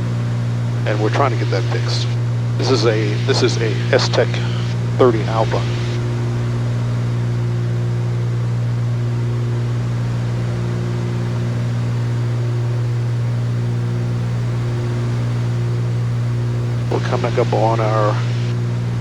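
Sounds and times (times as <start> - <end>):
aircraft cabin engine drone: 0.0 - 19.0.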